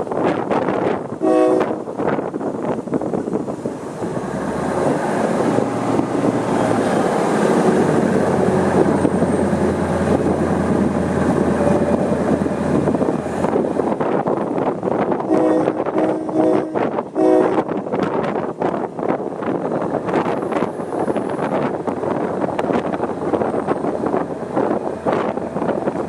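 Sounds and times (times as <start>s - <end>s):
train engine rumble: 0.0s - 26.0s
train rolling noise: 0.0s - 26.0s
train horn blast: 1.2s - 1.8s, 15.2s - 17.8s.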